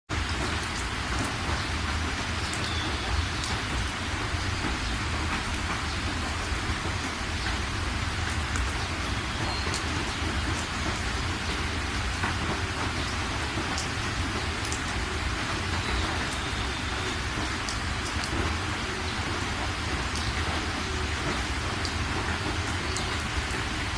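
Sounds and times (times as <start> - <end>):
raindrops ticking on a surface: 0.1 - 23.9
steady rain falling: 0.1 - 23.9.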